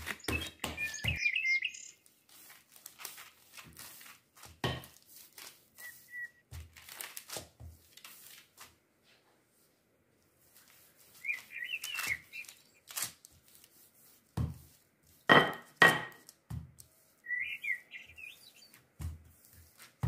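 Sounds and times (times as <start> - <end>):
small bird twittering: 0.0 - 2.0, 11.2 - 12.9, 17.2 - 18.8
rolling pin knocking on dough: 14.4 - 16.8.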